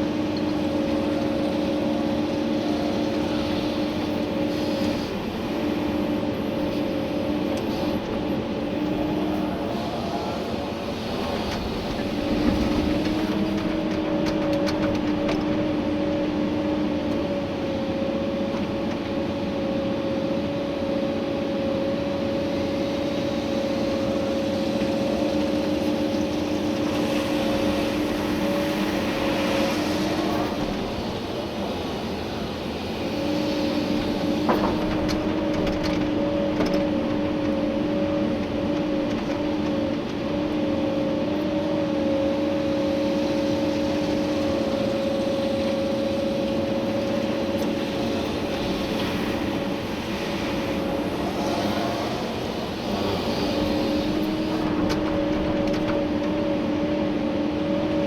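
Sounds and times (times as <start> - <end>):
excavator diesel engine: 0.0 - 58.0
hydraulic whine: 21.4 - 58.0.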